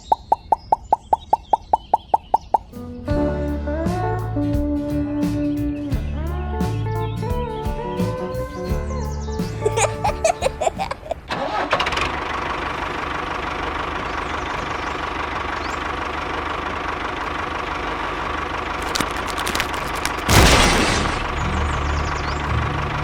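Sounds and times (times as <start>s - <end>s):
engine starting and running: 11.2s - 23.0s.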